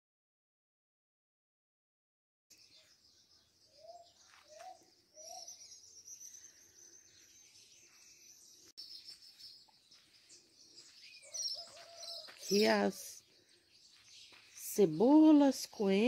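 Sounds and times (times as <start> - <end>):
high chirring of birds: 2.5 - 16.0
bird cooing: 3.7 - 7.3.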